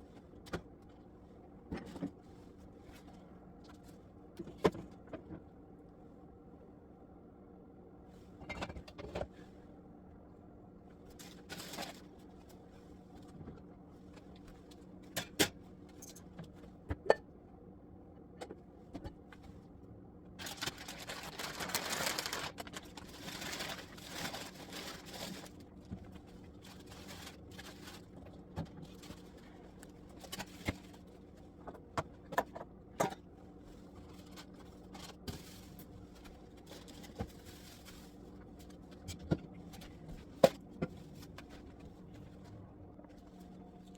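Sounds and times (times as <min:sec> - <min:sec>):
steady low hum: 0:00.0 - 0:43.9
rustling noise: 0:20.4 - 0:31.5, 0:33.6 - 0:39.1.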